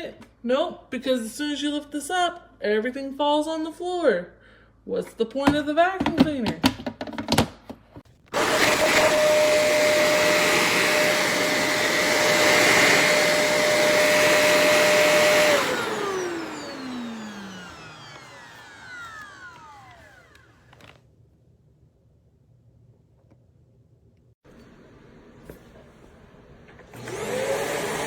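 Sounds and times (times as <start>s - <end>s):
vacuum cleaner running: 8.3s - 21.0s, 24.5s - 28.0s.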